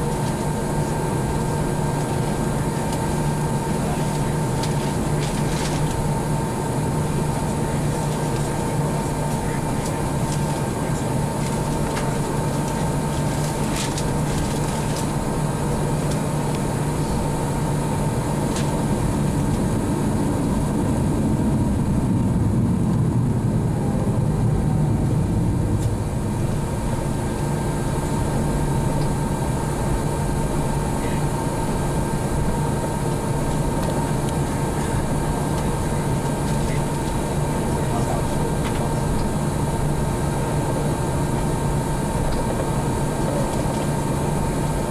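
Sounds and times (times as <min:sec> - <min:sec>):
cabin air noise: 0:00.0 - 0:44.9
high steady whine: 0:00.0 - 0:44.9
jet engines idling: 0:00.0 - 0:44.9.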